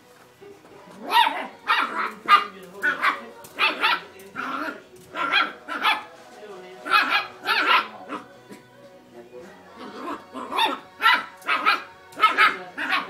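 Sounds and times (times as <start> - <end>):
dog barking: 1.0 - 6.1, 6.8 - 8.3, 9.9 - 13.0.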